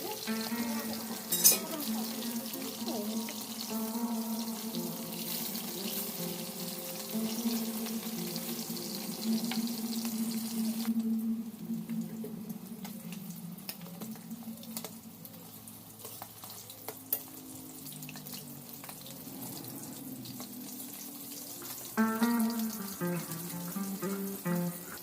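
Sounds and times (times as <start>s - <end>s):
fish sizzling in hot oil: 0.0s - 11.0s, 12.8s - 25.0s
oil popping and crackling: 0.0s - 11.1s, 12.2s - 25.0s
plucked-string background music: 0.0s - 11.2s, 21.6s - 25.0s.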